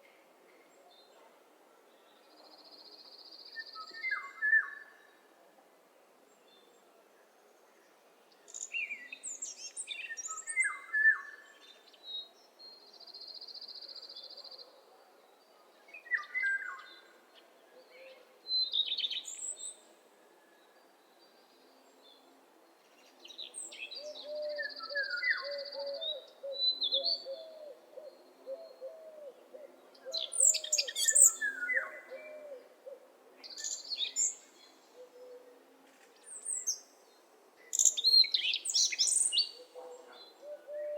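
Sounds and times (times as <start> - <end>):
birds singing: 23.3 - 32.6.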